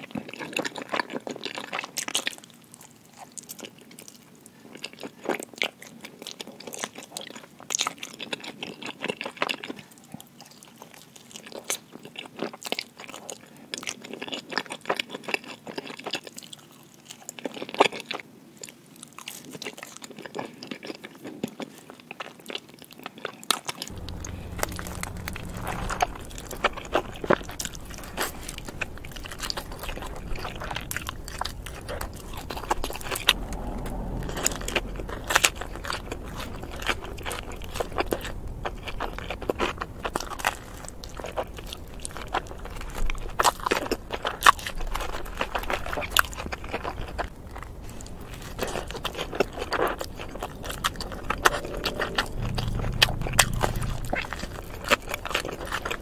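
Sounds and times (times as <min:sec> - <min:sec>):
steady low hum: 0:23.9 - 0:44.2, 0:46.5 - 0:56.0
person chewing pizza: 0:34.6 - 0:56.0.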